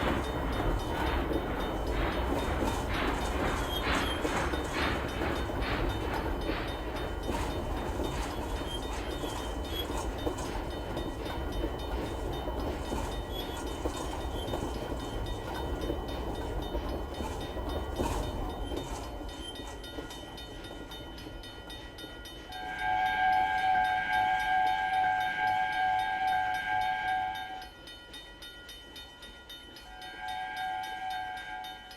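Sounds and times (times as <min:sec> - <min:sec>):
rail clatter: 0:00.0 - 0:21.0
train rumbling past: 0:00.0 - 0:21.6
train horn blast: 0:22.6 - 0:27.7, 0:30.0 - 0:31.9.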